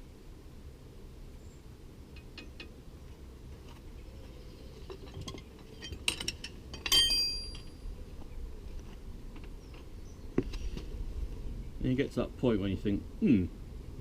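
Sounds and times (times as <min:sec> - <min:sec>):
metal tools clinking: 0:04.9 - 0:07.8.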